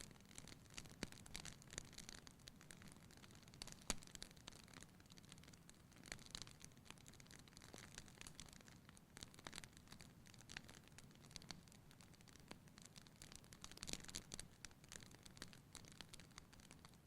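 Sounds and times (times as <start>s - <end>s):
faint fire hiss: 0.0s - 17.0s
wood fire crackling: 0.0s - 17.0s.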